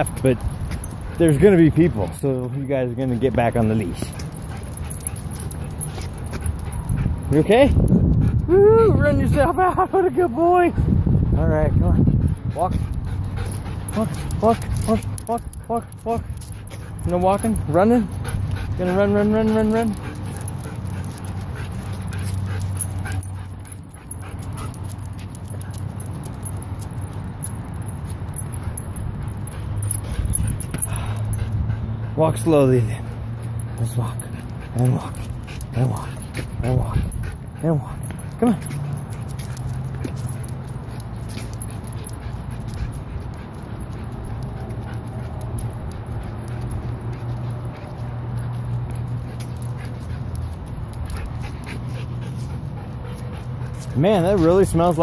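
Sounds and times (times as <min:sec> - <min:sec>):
light clicks and ticks: 0:33.4 - 0:55.0.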